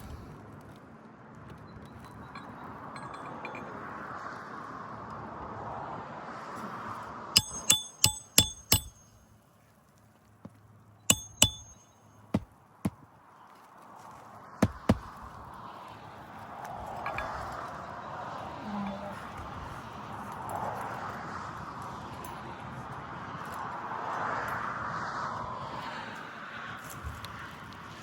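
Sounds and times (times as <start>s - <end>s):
hammer striking nails: 7.4s - 9.2s, 11.1s - 13.0s, 14.6s - 15.2s.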